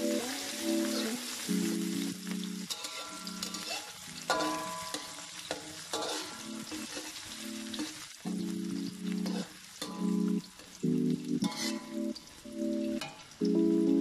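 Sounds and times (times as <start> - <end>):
onion and garlic sizzling in oil: 0.0 - 14.0
metal spatula scraping wok: 2.6 - 8.5, 9.2 - 10.8, 11.4 - 12.0.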